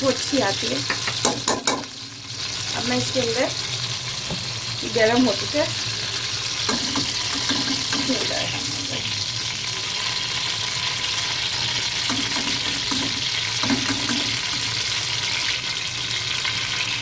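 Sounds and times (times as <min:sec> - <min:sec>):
paste sizzling in hot fat: 0:00.0 - 0:17.0
metal spoon knocking on pot: 0:00.8 - 0:01.9, 0:12.1 - 0:14.4.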